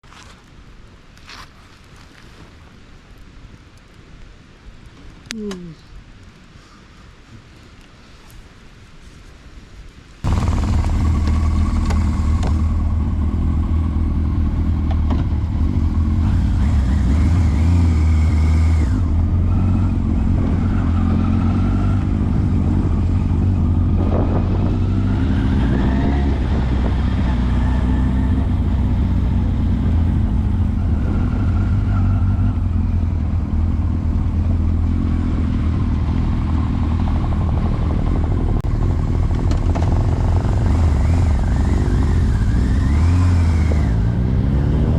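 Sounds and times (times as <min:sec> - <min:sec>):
motorcycle engine rumbling: 0:10.2 - 0:44.9.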